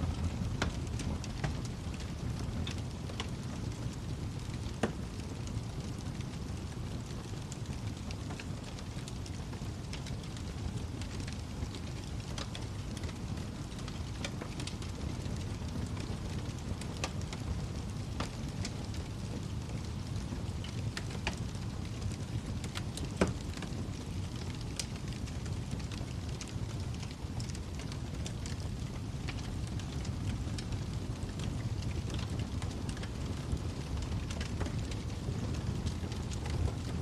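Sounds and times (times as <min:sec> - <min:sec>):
fire crackles and pops: 0:00.0 - 0:37.0
wood fire rumbling: 0:00.0 - 0:37.0.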